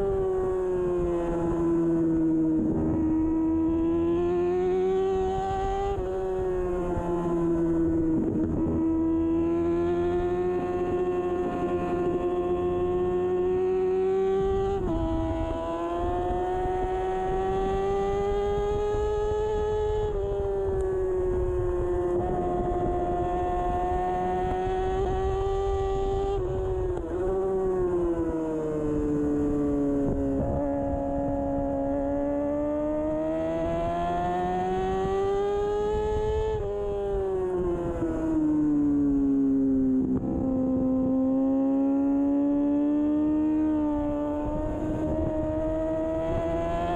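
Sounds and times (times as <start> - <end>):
motorcycle engine revving: 0.0 - 46.9
wind rush: 14.4 - 32.0.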